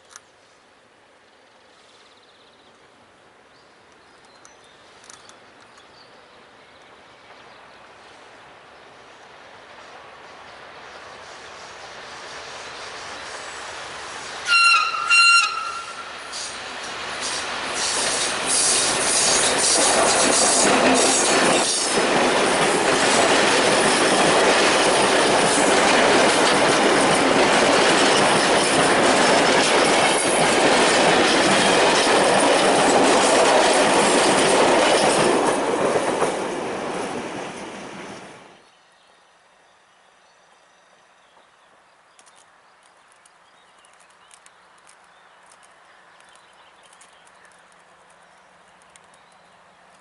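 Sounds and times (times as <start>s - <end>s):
freight train rolling past: 6.2s - 38.7s
small ticks: 42.2s - 50.0s.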